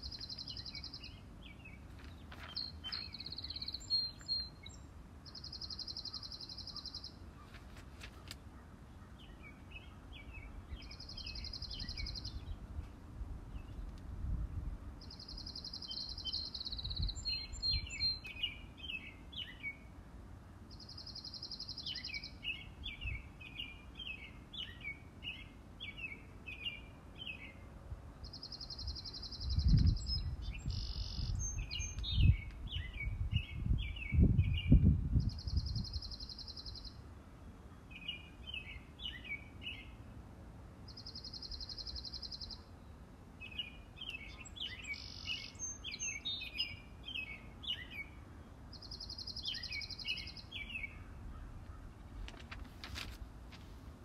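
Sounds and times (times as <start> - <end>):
twittering bird chirps: 0.0 - 7.6, 8.6 - 12.6, 15.0 - 19.8, 28.2 - 37.0, 40.9 - 42.8, 43.4 - 51.9.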